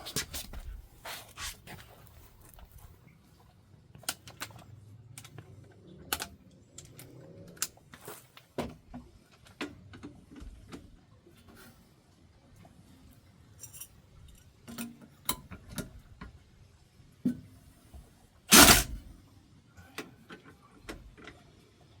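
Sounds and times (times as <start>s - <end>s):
hand tools clicking and knocking: 18.5s - 19.0s.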